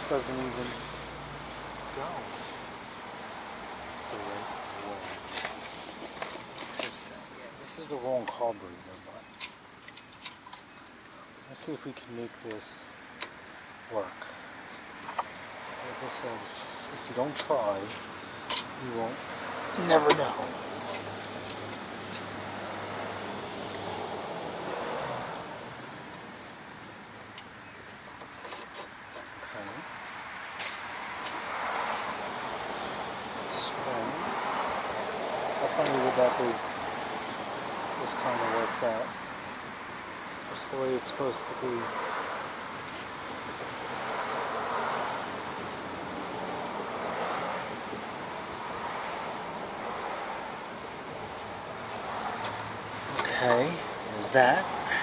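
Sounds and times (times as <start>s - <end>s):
cricket trilling: 0.0s - 55.0s.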